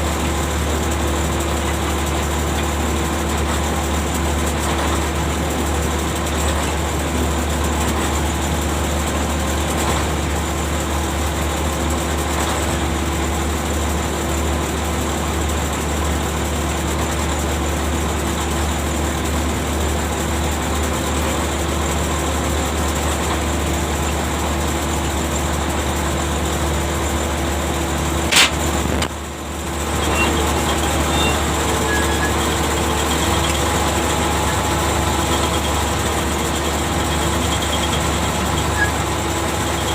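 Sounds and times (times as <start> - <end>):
ship machinery droning: 28.2 - 39.9
sharp click: 28.3 - 29.2.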